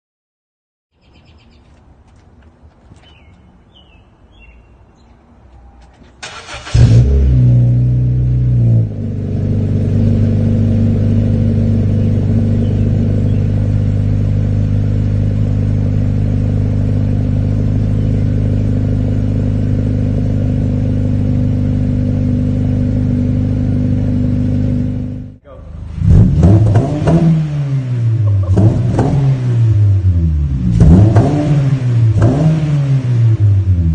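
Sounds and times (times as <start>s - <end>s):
faint bird chirps: 0.9s - 1.7s, 3.0s - 6.0s
car engine starting and idling: 5.5s - 33.9s.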